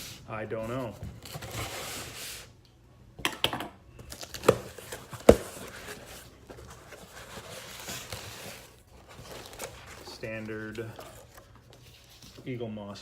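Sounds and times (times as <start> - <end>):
packaging tearing and crinkling: 7.0 - 11.8.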